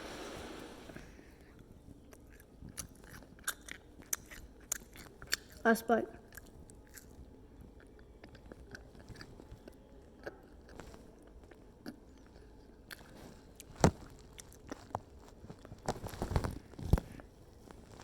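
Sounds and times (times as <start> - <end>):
person chewing: 2.0 - 5.6, 6.3 - 15.8.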